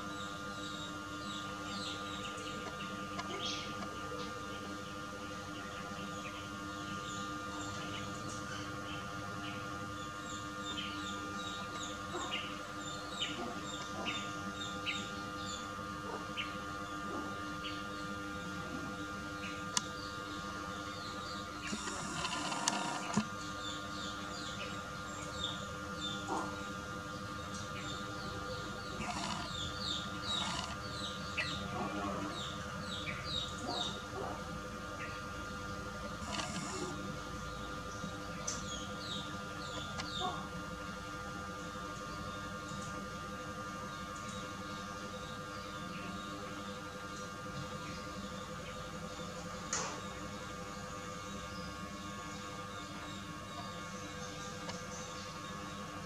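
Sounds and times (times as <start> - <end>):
steady background hum: 0.0 - 56.0
small birds chirping: 19.2 - 43.0.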